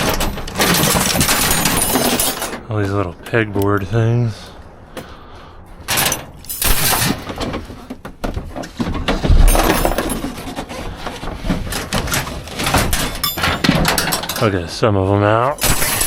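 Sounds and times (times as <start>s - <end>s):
scrap metal clanking: 5.8s - 14.6s
heavy thump: 9.0s - 10.3s.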